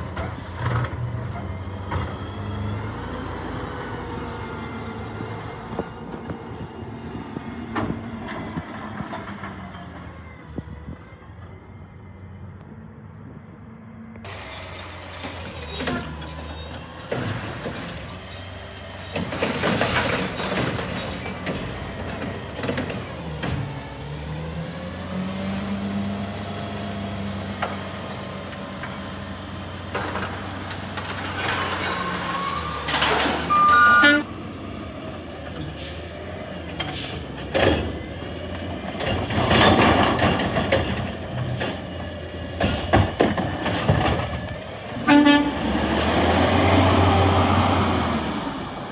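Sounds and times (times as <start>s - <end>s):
diesel engine revving: 0.0s - 11.0s, 14.2s - 48.9s
carts banging: 14.3s - 34.3s
air brakes hissing: 17.3s - 28.5s, 35.6s - 37.4s.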